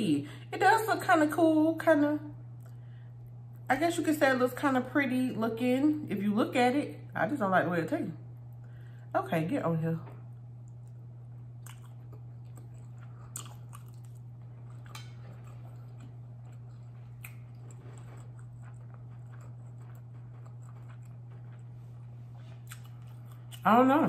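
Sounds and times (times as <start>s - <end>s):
steady low hum: 0.0s - 24.0s
woman chewing food: 10.5s - 23.8s.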